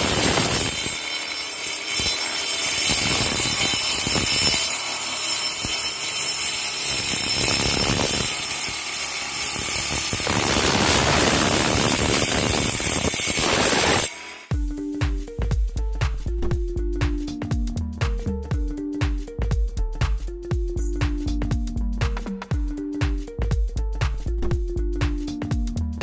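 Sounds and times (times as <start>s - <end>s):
power tool motor whining: 0.0s - 14.5s.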